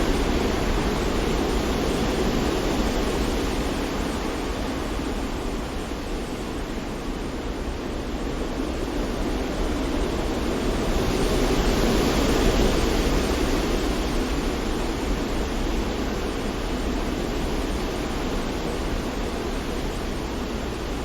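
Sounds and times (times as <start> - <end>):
wind: 0.0 - 21.0.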